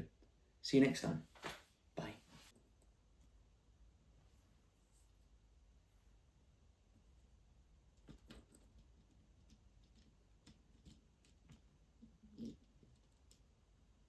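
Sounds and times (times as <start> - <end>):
faint clicks and taps: 7.9 - 13.5.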